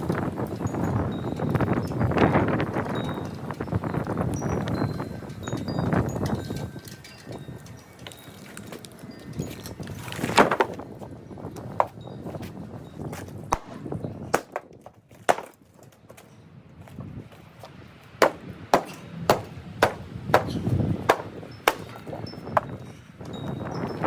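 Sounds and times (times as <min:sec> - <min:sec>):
blows striking wood: 0:13.5 - 0:16.2, 0:18.2 - 0:22.9.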